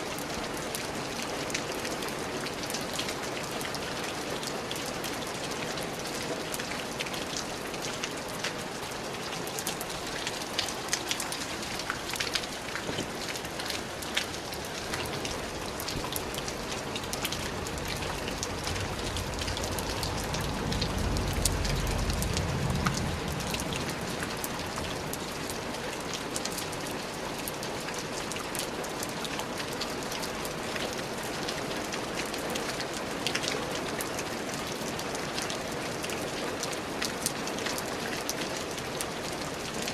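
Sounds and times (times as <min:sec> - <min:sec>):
steady rain falling: 0:00.0 - 0:39.9
low rumble: 0:17.5 - 0:24.8.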